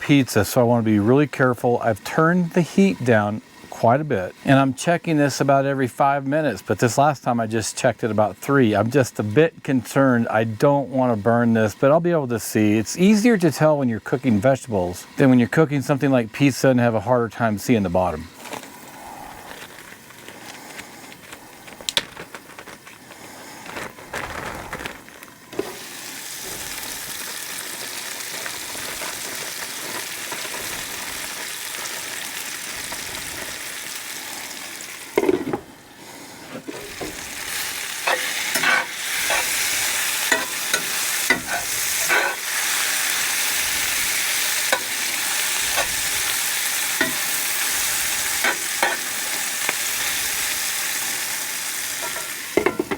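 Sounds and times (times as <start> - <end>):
vegetables sizzling in a skillet: 0.0 - 52.9
stirring clicks and scrapes: 38.0 - 42.5.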